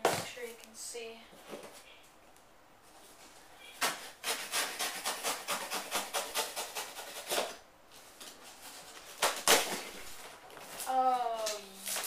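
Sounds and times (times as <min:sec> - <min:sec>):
knife sawing through cardboard: 0:03.9 - 0:07.6.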